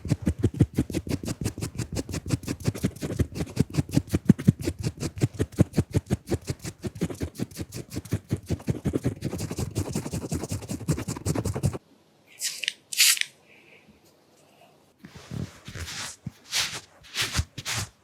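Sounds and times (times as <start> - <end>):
rhythmic scratching on microphone: 0.0 - 11.8.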